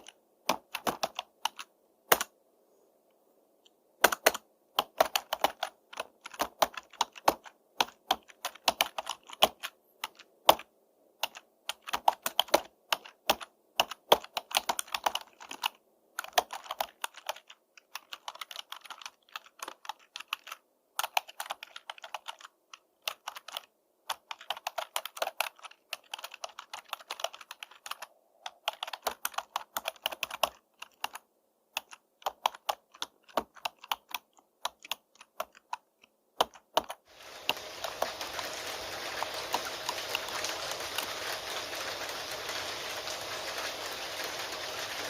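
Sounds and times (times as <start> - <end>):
computer keyboard typing: 0.0 - 2.3, 4.0 - 45.0
rain hissing: 37.1 - 45.0.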